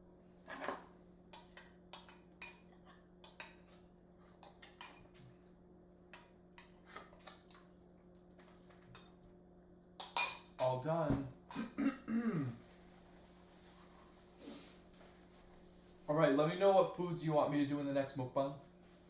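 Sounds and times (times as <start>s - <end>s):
spoon clinking against a bowl: 1.3s - 3.7s, 4.4s - 5.2s, 10.0s - 10.8s.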